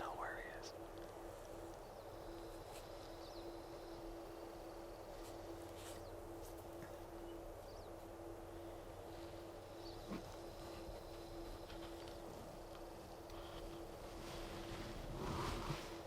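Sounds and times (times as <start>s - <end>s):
steady low hum: 0.0s - 16.0s
faint bird chirps: 1.6s - 10.5s.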